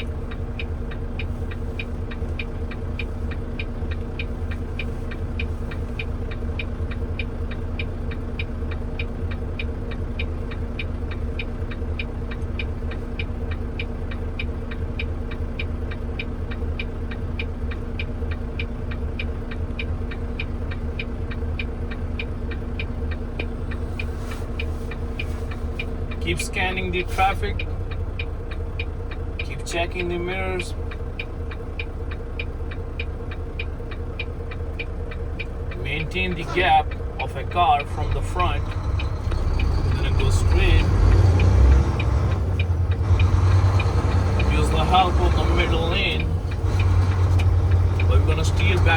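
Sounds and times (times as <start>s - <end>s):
truck engine drone: 0.0s - 48.9s
turn signal ticking: 0.0s - 48.9s.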